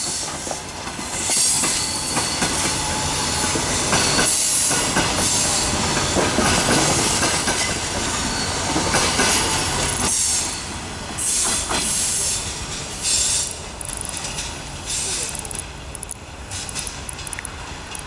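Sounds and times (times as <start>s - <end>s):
train wheel squeal: 0.0s - 13.6s
train wheels clattering on rails: 0.0s - 18.0s.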